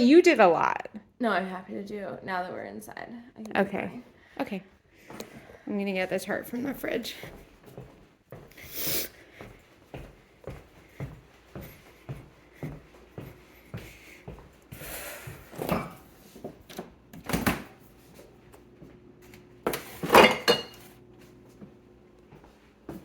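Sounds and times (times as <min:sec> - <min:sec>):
refrigerator door and dish clatter: 0:19.7 - 0:20.8.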